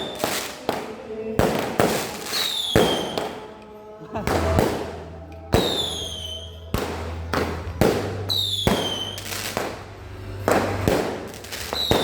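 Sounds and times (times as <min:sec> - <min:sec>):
fireworks bangs: 0:00.0 - 0:03.5, 0:04.2 - 0:09.8, 0:10.5 - 0:12.0.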